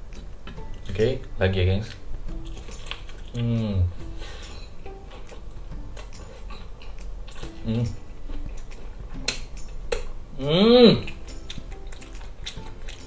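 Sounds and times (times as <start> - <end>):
person humming mm: 3.3 - 4.0, 7.6 - 8.0, 10.3 - 11.2
wet chewing with lip smacks: 11.0 - 13.0.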